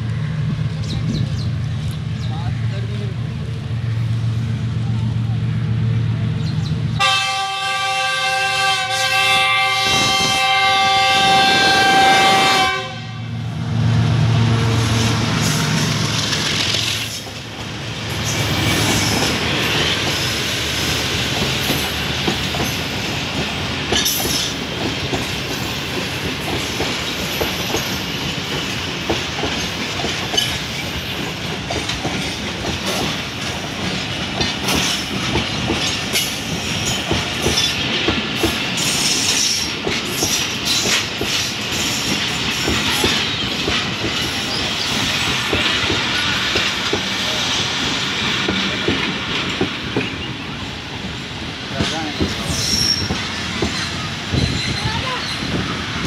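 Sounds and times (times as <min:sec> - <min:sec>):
locomotive rumble passing: 0:00.0 - 0:56.0
locomotive air horn chord: 0:07.0 - 0:13.3
train wheels clickety-clack: 0:14.8 - 0:56.0.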